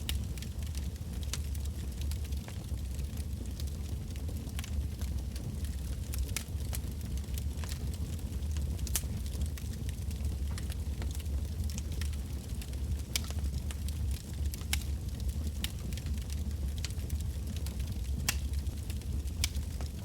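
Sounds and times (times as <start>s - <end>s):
burning logs crackling and popping: 0.0s - 20.0s
low rumble of flames: 0.0s - 20.0s.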